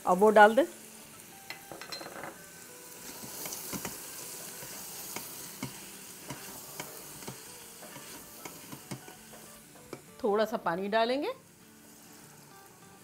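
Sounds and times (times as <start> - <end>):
food sizzling in a pot: 0.0 - 13.0
spoon knocking and scraping pot: 1.5 - 2.4, 3.1 - 10.1.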